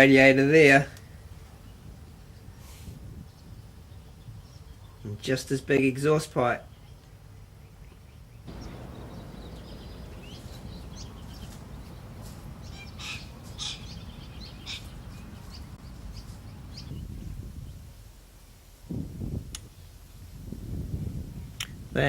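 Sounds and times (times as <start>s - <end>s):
birds chirping: 1.5s - 18.0s
steady low rumble: 8.5s - 14.5s.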